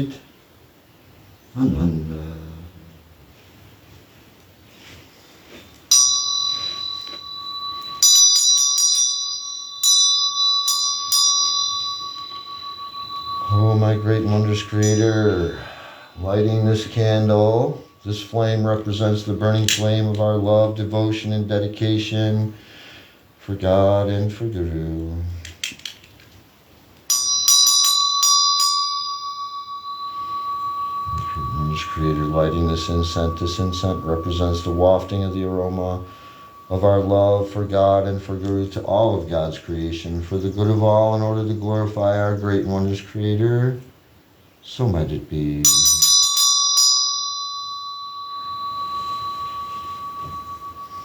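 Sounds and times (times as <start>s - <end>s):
small bell ringing: 5.8s - 20.8s, 27.1s - 39.6s, 45.6s - 51.0s.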